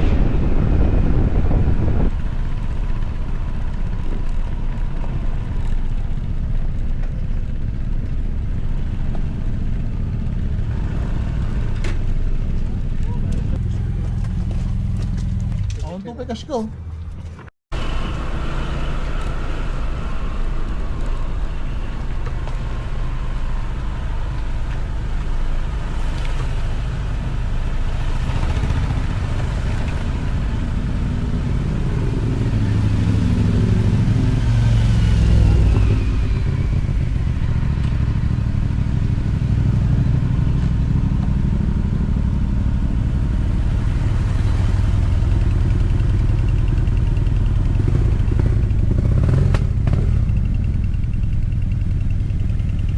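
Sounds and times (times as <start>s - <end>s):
motorcycle engine running: 26.9s - 52.9s.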